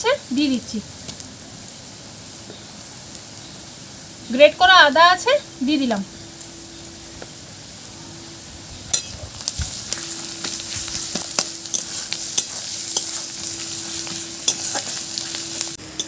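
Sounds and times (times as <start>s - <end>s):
onion frying in oil sizzling: 0.0s - 16.0s
spatula scraping a pan: 9.8s - 15.6s.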